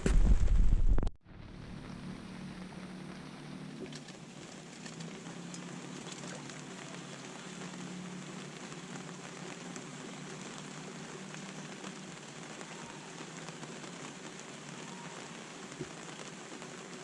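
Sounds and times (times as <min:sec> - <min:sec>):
low steady hum: 0:00.0 - 0:10.8
steady rain falling: 0:00.0 - 0:17.0.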